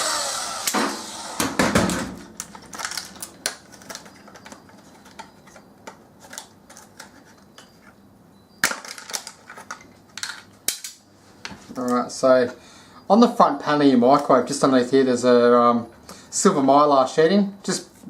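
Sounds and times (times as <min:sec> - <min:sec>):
power tool running down: 0:00.0 - 0:01.6
small parts clicking and clattering: 0:02.3 - 0:08.0, 0:08.6 - 0:11.0.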